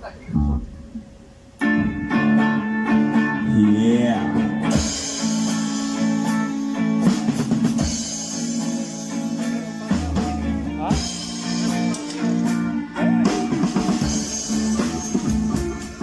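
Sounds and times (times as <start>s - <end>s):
live rock band playing: 1.6s - 16.0s
cymbal strokes: 4.7s - 10.4s, 11.0s - 16.0s.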